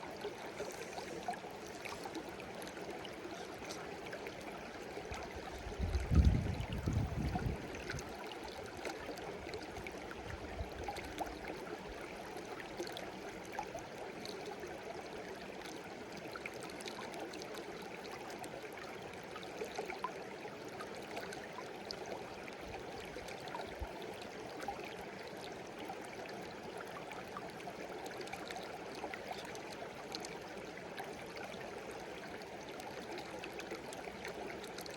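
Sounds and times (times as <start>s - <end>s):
stream babbling over rocks: 0.0s - 34.9s.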